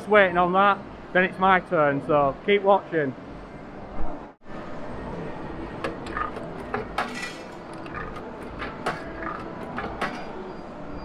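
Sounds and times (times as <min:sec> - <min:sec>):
steady background hum: 0:00.0 - 0:11.0
hard objects clinking: 0:05.9 - 0:10.4.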